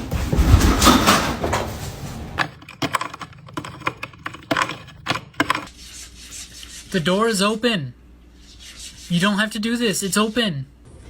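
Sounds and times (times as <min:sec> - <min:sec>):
rustling and knocking: 0:00.0 - 0:05.7.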